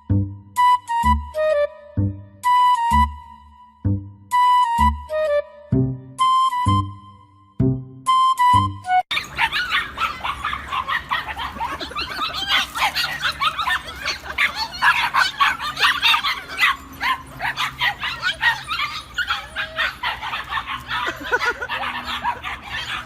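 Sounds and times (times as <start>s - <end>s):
dogs yipping and barking: 9.1s - 23.0s.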